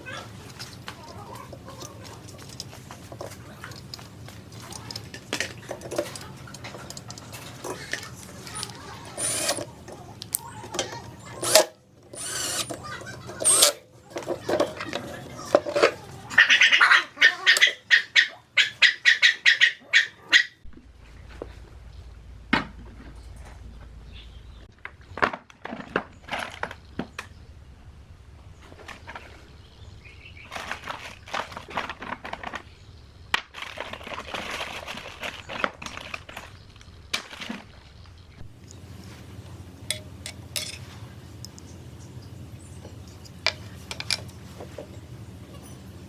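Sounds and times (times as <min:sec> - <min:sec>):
sharp clicks and metallic clinks: 0:03.6 - 0:14.8, 0:39.9 - 0:45.9
low steady hum: 0:20.6 - 0:25.2, 0:38.0 - 0:46.0.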